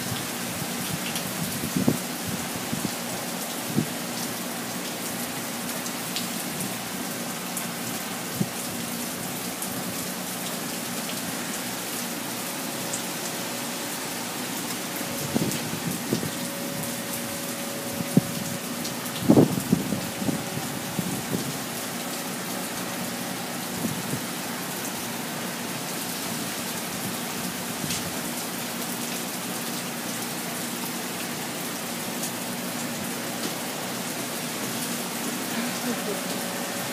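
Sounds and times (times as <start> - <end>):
heavy rain falling: 0.0 - 36.9.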